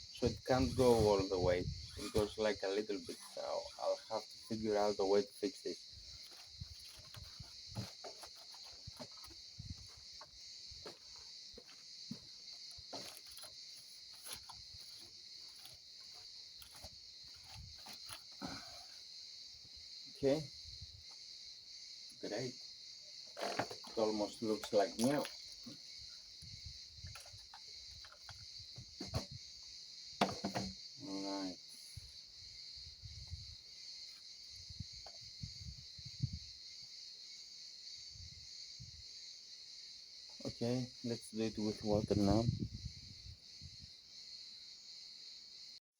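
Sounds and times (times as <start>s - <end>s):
crickets chirring: 0.0s - 45.8s
knocks and rubbing on plastic: 6.2s - 13.5s, 27.1s - 29.4s, 30.2s - 30.8s.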